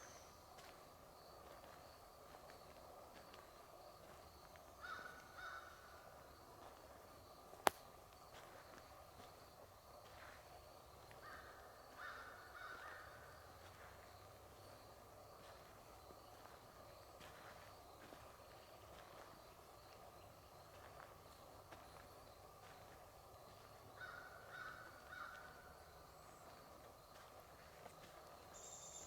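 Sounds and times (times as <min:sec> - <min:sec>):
sharp snap: 0:07.6 - 0:07.8
bird calling faintly: 0:28.5 - 0:29.0.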